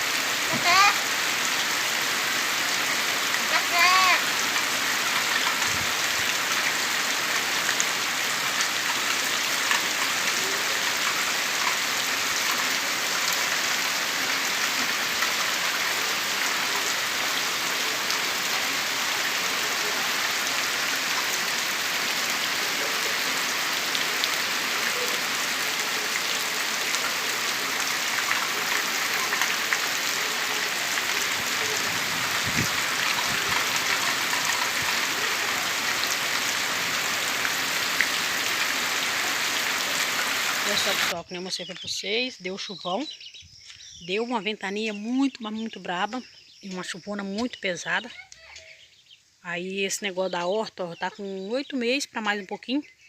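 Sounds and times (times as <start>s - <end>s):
heavy rain hissing: 0.0s - 41.2s
raindrops pattering: 0.0s - 41.2s.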